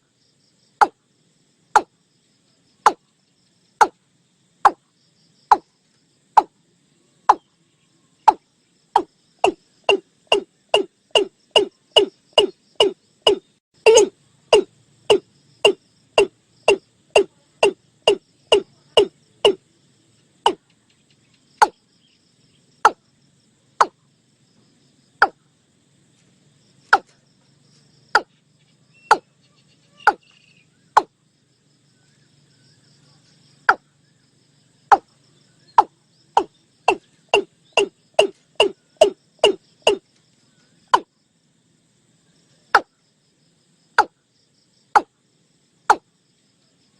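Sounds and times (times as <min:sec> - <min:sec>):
bird calling short pitched notes: 0:09.0 - 0:15.8.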